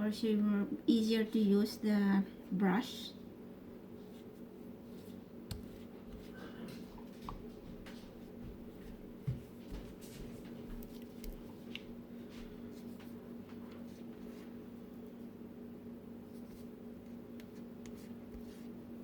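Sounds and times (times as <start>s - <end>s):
low electrical hum: 0.0s - 19.0s
pastry brush strokes on dough: 3.9s - 7.6s, 9.9s - 15.2s, 16.2s - 16.8s, 17.5s - 18.9s.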